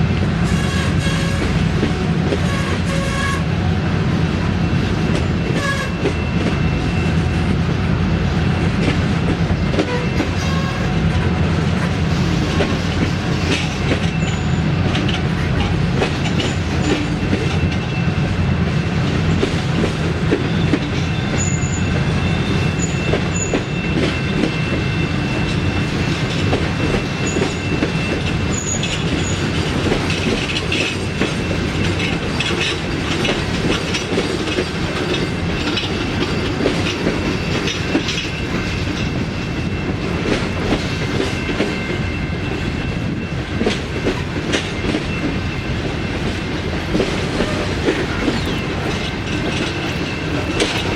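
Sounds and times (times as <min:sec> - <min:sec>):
freight train rumble: 0:00.0 - 0:50.9
wheels clicking over rail joints: 0:08.6 - 0:18.3, 0:25.4 - 0:50.9.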